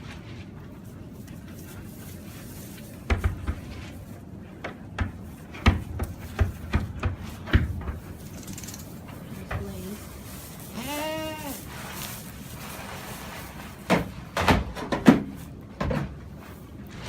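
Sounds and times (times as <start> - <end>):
sharp knocks and thumps: 3.0 - 3.9, 4.6 - 8.2
goat bleating: 10.7 - 11.7.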